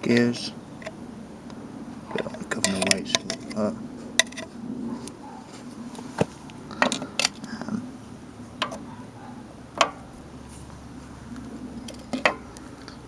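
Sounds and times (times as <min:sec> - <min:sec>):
oil can metallic clicks: 0:00.8 - 0:03.6.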